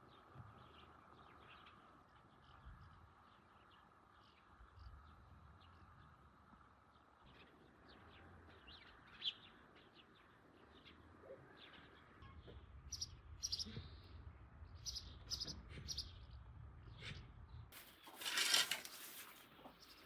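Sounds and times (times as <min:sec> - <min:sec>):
small birds chirping: 0:17.8 - 0:20.0.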